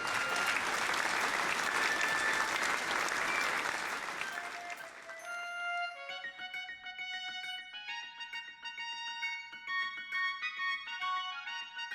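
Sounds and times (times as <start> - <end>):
crowd applause: 0.0 - 5.4
keyboard and guitar tune: 4.2 - 11.9.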